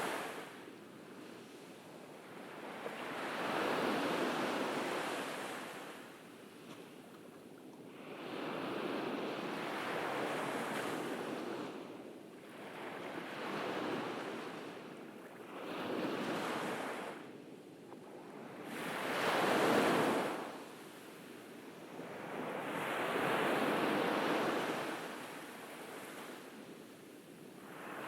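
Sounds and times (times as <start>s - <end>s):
ocean waves breaking on beach: 0.0s - 0.8s, 1.4s - 6.3s, 18.3s - 28.0s.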